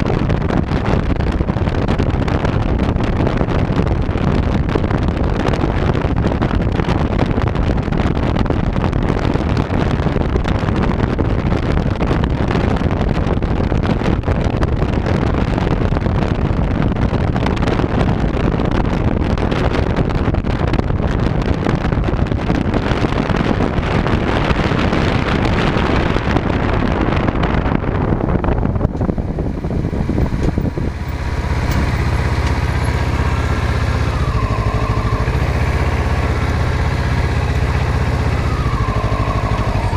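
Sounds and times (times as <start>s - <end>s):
wind rush on microphone: 0.0s - 39.9s
motorcycle engine: 27.3s - 39.9s.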